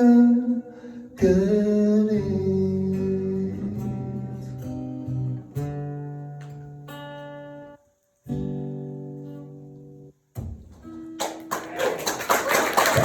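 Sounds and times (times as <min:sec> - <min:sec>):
acoustic guitar strummed chords: 0:00.0 - 0:11.4
audience clapping: 0:11.1 - 0:13.0.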